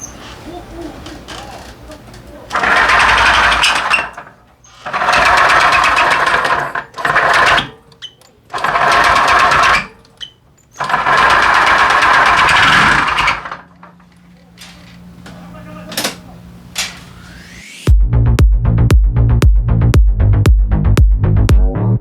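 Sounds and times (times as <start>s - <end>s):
scooter engine revving: 2.5s - 7.8s, 8.5s - 10.0s, 10.8s - 13.6s.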